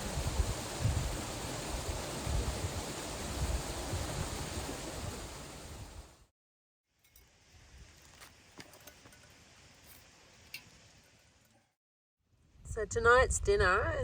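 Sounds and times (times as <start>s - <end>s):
steady rushing outdoor noise: 0.0s - 6.1s
wind rumbling on microphone: 0.0s - 6.2s, 12.5s - 14.0s.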